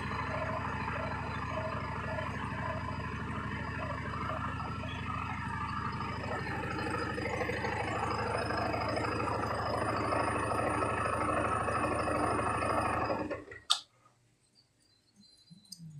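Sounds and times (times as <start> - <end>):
motorcycle engine idling: 0.0 - 13.7
sharp click: 13.7 - 13.9.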